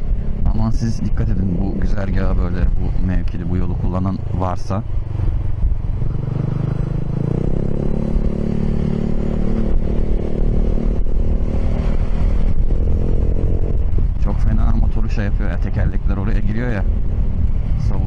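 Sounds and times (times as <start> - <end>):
wind rumble on microphone: 0.0 - 18.0
scooter engine accelerating: 6.0 - 14.0.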